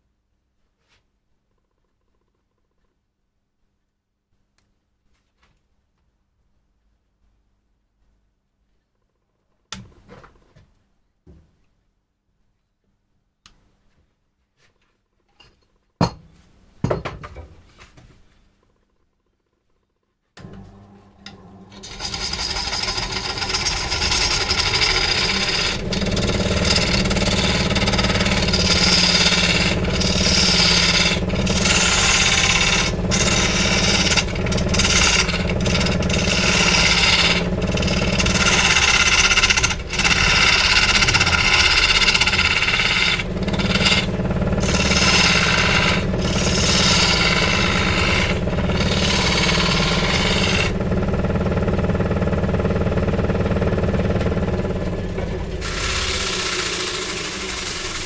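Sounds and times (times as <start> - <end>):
chainsaw cutting wood: 20.4 - 58.0.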